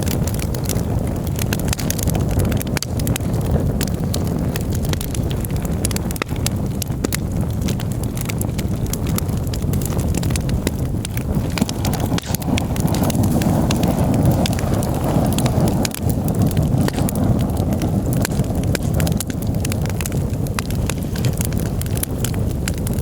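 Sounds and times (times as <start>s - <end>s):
campfire crackling and popping: 0.0s - 23.0s
steady low rumble: 0.0s - 23.0s.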